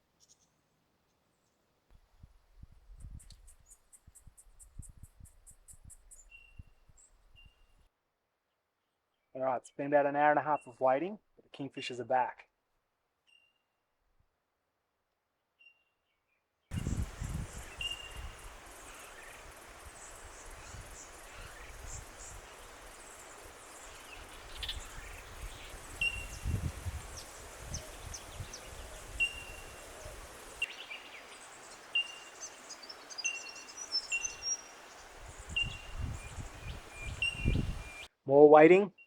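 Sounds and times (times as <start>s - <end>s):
wind rumbling on microphone: 2.0s - 7.6s, 16.7s - 31.2s, 33.7s - 38.1s
bird twittering: 16.7s - 38.1s.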